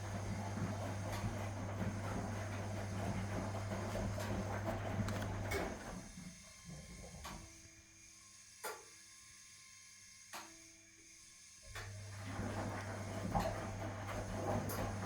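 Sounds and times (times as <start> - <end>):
washing machine running: 0.0 - 7.9, 11.7 - 15.0.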